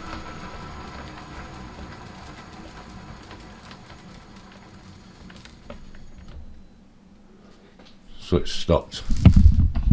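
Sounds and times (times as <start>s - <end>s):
lathe running with low hum: 0.0s - 7.0s.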